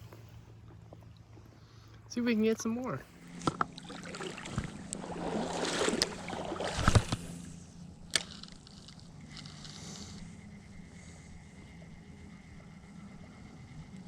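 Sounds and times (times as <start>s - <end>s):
river water sloshing around legs: 0.0s - 9.7s.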